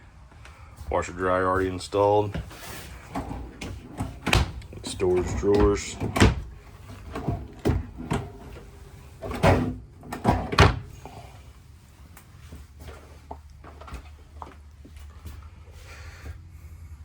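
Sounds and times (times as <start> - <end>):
drawers opening and shutting: 2.2 - 11.1.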